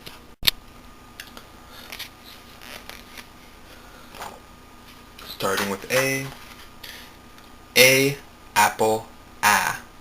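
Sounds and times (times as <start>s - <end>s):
faint steady hum: 0.0s - 10.0s
soft rustles: 1.8s - 3.6s, 4.2s - 6.8s.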